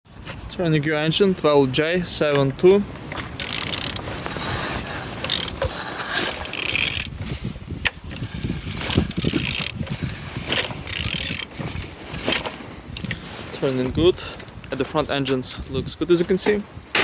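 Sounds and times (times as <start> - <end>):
crank and gears clicking: 3.4 - 4.4, 5.2 - 7.1, 8.9 - 9.8, 10.6 - 11.5
engine turned over by hand: 3.4 - 7.2, 8.1 - 13.2.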